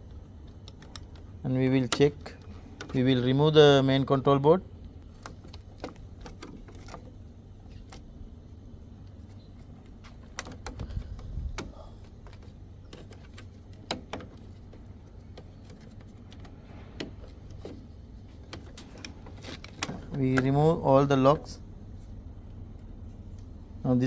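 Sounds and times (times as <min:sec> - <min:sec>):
sharp plastic clicks: 0:00.0 - 0:03.0, 0:09.8 - 0:20.6.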